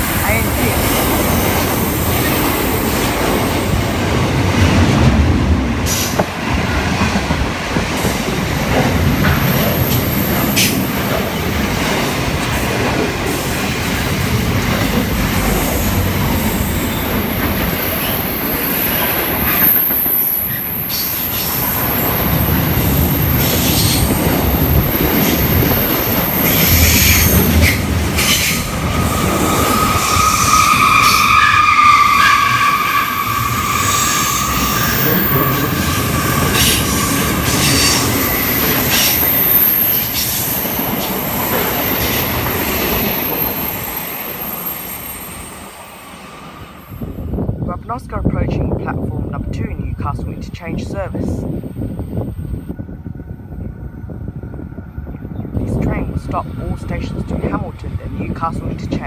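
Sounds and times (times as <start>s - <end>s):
freight train wheel rumble: 0.0s - 59.0s
high wheel squeal: 26.3s - 40.6s, 42.9s - 45.6s.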